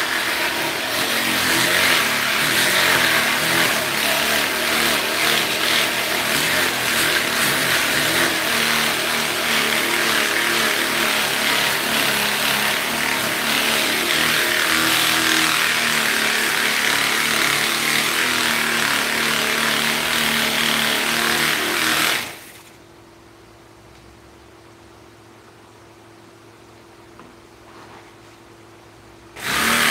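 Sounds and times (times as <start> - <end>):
power tool running with hiss: 0.0 - 22.7, 29.4 - 29.9
faint hum: 22.6 - 29.4.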